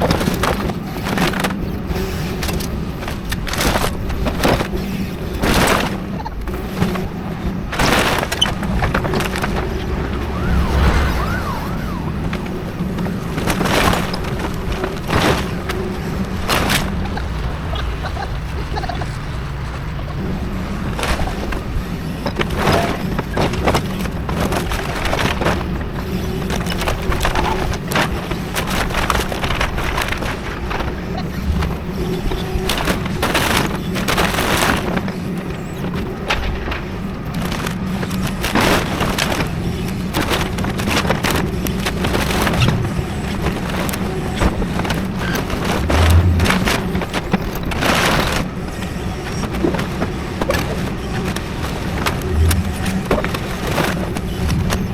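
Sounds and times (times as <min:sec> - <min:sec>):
excavator diesel engine running: 0:00.0 - 0:33.4, 0:41.0 - 0:54.9
debris crunching and snapping: 0:38.4 - 0:48.5.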